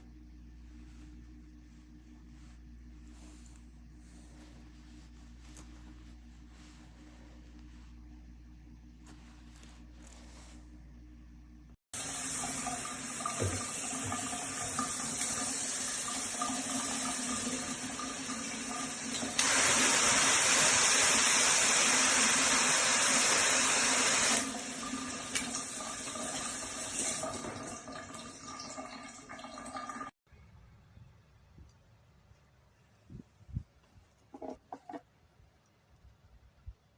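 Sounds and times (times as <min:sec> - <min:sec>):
shower head spraying water: 0:12.0 - 0:24.6.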